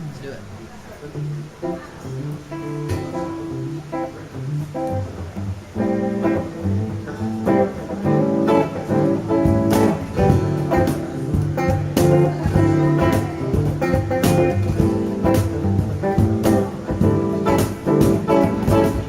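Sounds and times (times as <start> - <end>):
acoustic guitar strumming: 1.1 - 19.0
cajon beats: 1.7 - 19.0.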